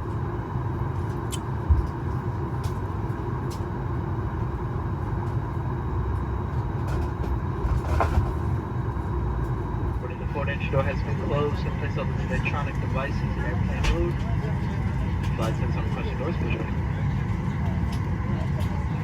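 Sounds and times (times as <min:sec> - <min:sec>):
cabin ventilation hum: 0:00.0 - 0:19.0.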